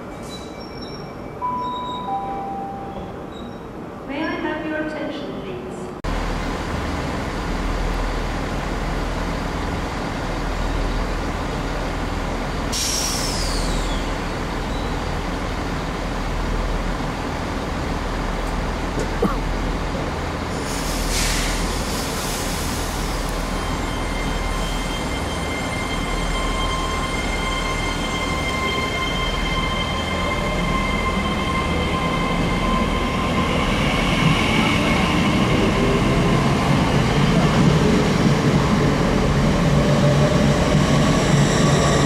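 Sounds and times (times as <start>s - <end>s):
air hiss: 12.7s - 13.8s, 20.6s - 23.1s.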